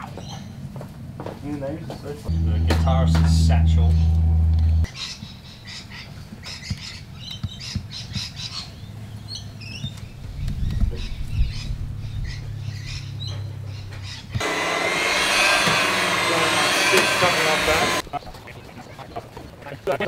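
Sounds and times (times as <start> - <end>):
loud low drone: 2.3 - 4.9, 14.4 - 18.0
low hum: 2.3 - 4.9
birds chirping and squawking: 6.5 - 14.4.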